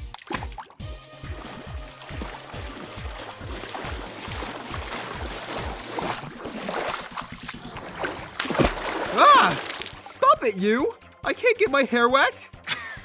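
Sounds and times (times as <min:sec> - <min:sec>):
cartoon water sloshing and splashing: 0:00.0 - 0:10.3.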